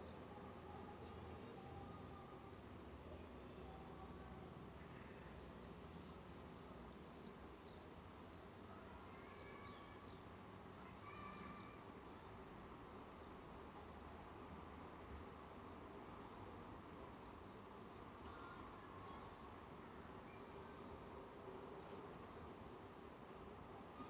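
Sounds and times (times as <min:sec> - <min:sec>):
low background noise: 0:00.0 - 0:24.0.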